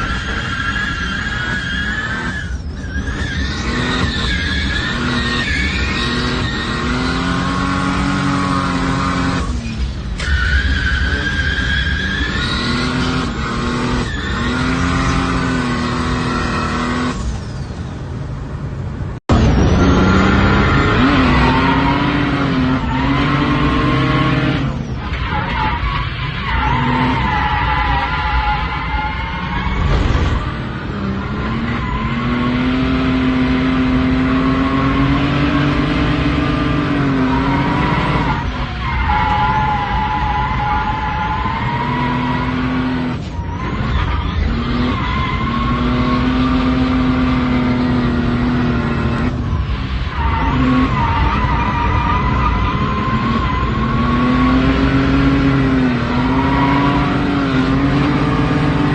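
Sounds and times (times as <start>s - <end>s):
car engine revving high: 3.5s - 9.6s, 19.3s - 24.8s, 28.6s - 58.9s.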